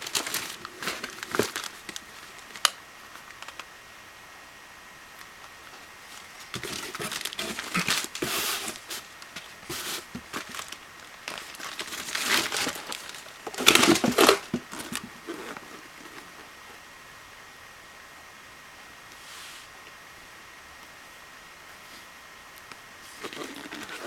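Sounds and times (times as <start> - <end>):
packaging crinkling: 0.0 - 3.7, 6.1 - 16.4.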